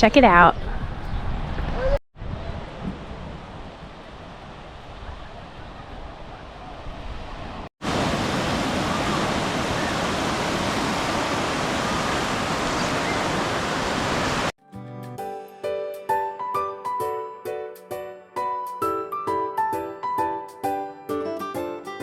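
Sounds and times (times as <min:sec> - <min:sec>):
wind: 0:00.0 - 0:14.5
ocean waves breaking: 0:02.6 - 0:14.6
piano music: 0:14.6 - 0:22.0.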